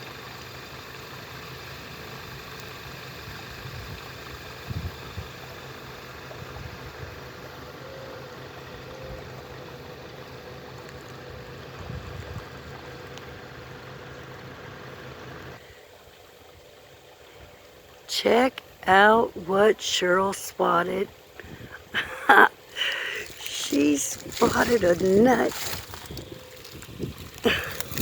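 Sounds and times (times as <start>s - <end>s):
engine idling: 0.0s - 17.9s, 21.1s - 28.0s
creek water running: 0.0s - 28.0s.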